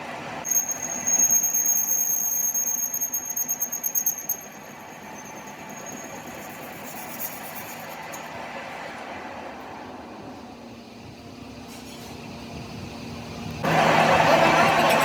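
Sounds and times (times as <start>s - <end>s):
high-pitched mechanical squeal: 0.4s - 8.4s, 13.7s - 15.0s.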